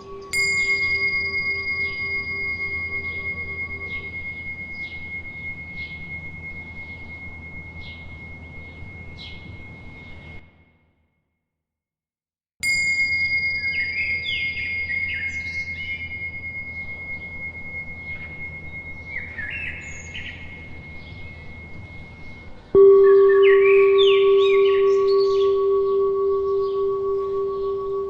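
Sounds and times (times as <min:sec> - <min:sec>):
high-pitched bell ringing: 0:00.0 - 0:10.6, 0:12.6 - 0:28.0
lower-pitched bell struck: 0:00.0 - 0:10.6, 0:12.6 - 0:28.0
small birds chirping: 0:13.6 - 0:28.0.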